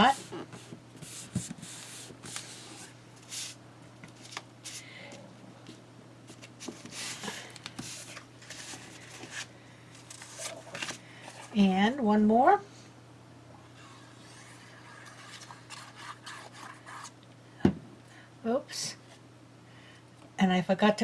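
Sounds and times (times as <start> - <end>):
faint steady hum: 0.0 - 21.0
paper rustling: 6.3 - 11.6.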